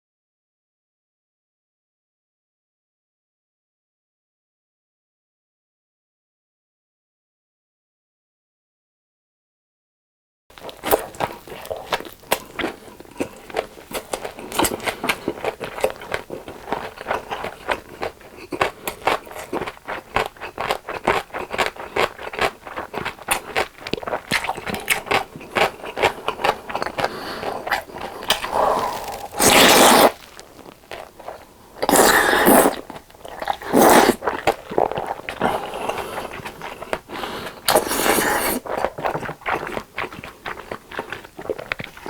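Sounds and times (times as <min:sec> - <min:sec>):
food packaging crinkling: 0:10.6 - 0:17.9, 0:22.5 - 0:33.5
packaging tearing: 0:28.0 - 0:31.1.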